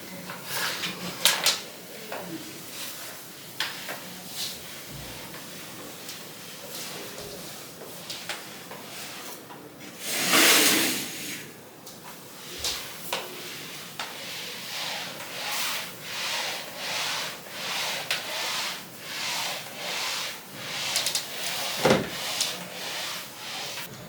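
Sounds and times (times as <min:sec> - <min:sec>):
rubbing strokes on a surface: 0:12.2 - 0:23.9.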